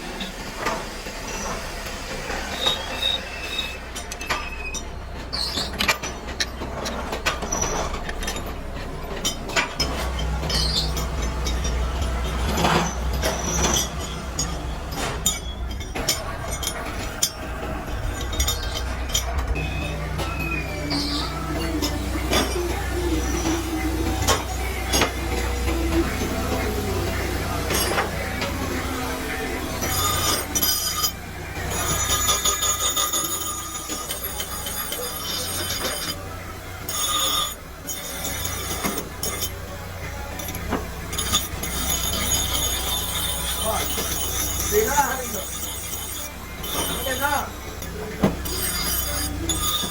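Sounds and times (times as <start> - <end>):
workshop machinery humming: 0.0 - 49.9
metal parts clinking: 3.9 - 19.7, 29.7 - 49.9
loud metallic ringing tone: 9.8 - 49.9.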